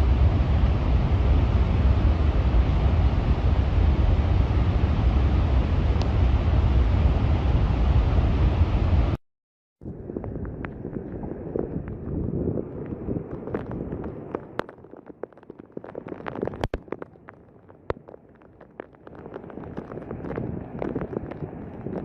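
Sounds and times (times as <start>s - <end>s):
stones and debris knocking: 10.0s - 22.0s.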